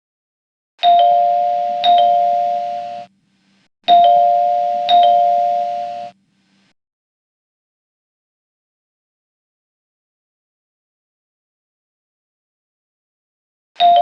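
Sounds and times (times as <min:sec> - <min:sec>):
two-note electronic chime: 0:00.8 - 0:03.1, 0:03.9 - 0:06.2.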